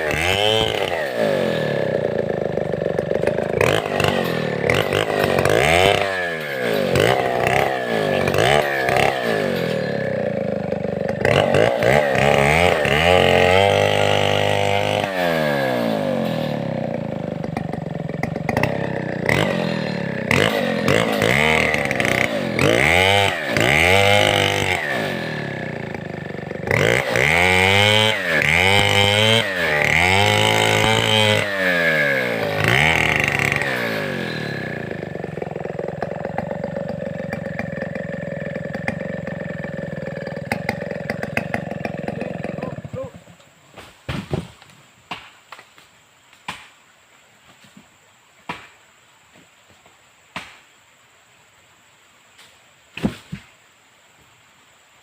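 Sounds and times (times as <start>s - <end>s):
chainsaw revving: 0.0s - 43.4s.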